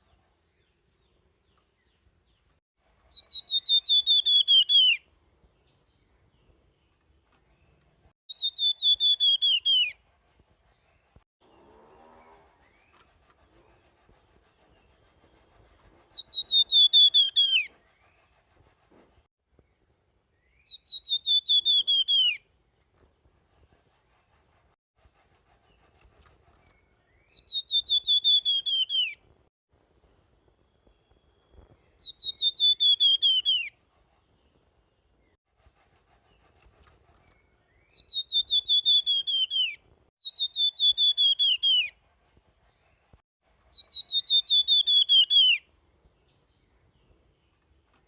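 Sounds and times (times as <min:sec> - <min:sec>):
songbird whistling phrases: 0:03.1 - 0:05.0, 0:08.3 - 0:10.0, 0:16.1 - 0:17.7, 0:20.6 - 0:22.4, 0:27.2 - 0:29.2, 0:32.0 - 0:33.7, 0:37.8 - 0:41.9, 0:43.7 - 0:45.6.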